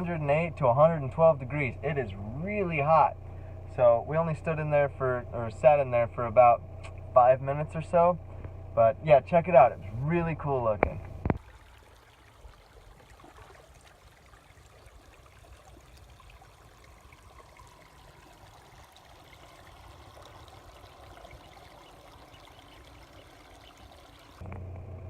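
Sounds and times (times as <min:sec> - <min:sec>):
water trickling: 0:11.1 - 0:24.4.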